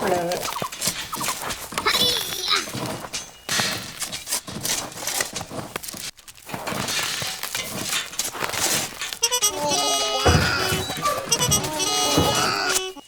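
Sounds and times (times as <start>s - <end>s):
soil and stones crunching: 0.0s - 13.0s
music: 9.2s - 13.0s.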